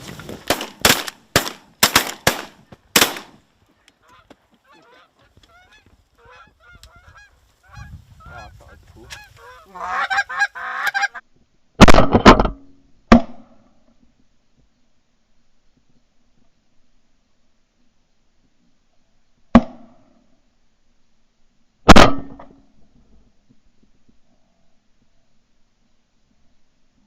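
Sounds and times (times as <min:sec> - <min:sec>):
shotgun shots: 0:00.4 - 0:03.4
geese honking: 0:03.8 - 0:11.2.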